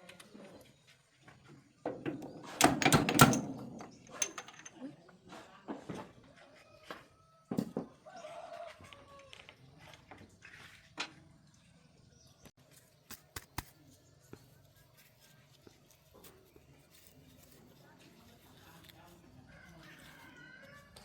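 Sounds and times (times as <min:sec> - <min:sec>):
hand tools knocking and clicking: 0:01.9 - 0:04.8.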